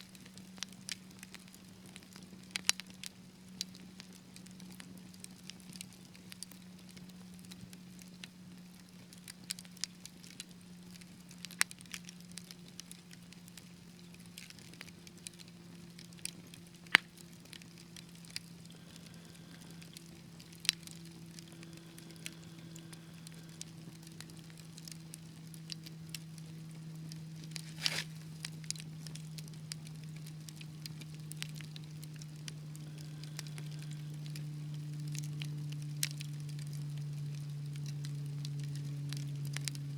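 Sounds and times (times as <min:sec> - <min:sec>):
wood fire crackling: 0:00.0 - 0:39.9
steady low hum: 0:08.2 - 0:39.9.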